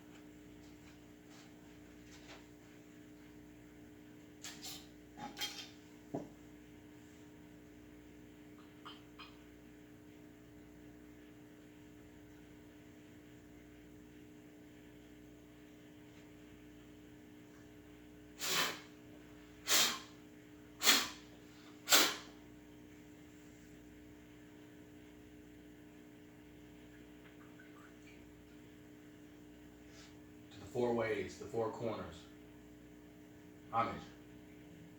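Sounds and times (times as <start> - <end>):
faint steady hum: 0.0 - 34.9
person blowing hissing bursts: 18.4 - 19.0, 19.6 - 20.2, 20.8 - 22.4.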